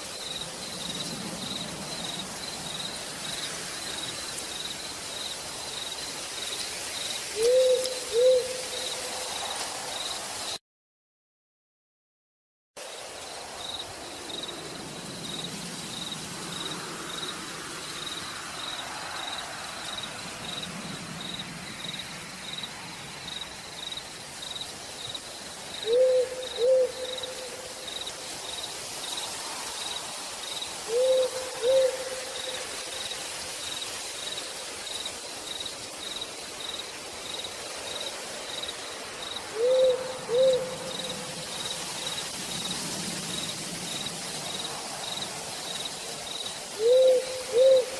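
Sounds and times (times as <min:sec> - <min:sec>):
insect chirping: 0:00.0 - 0:10.6, 0:12.9 - 0:47.9
rain hissing: 0:00.0 - 0:10.6, 0:12.8 - 0:47.9
owl hooting: 0:07.4 - 0:09.0, 0:25.8 - 0:27.7, 0:30.9 - 0:32.6, 0:39.5 - 0:41.0, 0:46.8 - 0:47.9.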